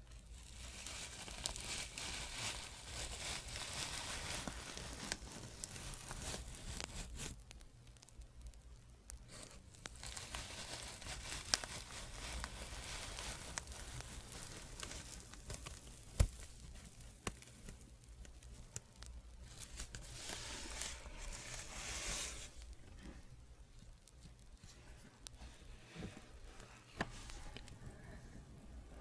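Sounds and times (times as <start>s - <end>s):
soft scratching on microphone: 9.2s - 29.0s.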